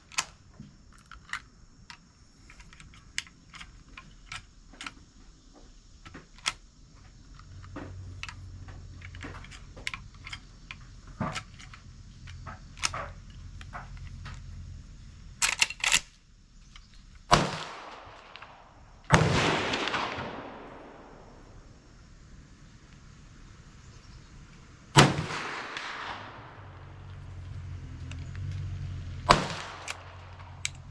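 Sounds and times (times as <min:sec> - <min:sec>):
handling clicks and taps: 0:00.0 - 0:14.6, 0:15.4 - 0:17.3, 0:29.3 - 0:30.9
quick run of sharp clicks: 0:15.4 - 0:16.1, 0:29.3 - 0:30.9
gunshots with echo: 0:19.1 - 0:21.3, 0:25.0 - 0:26.6, 0:29.3 - 0:30.3.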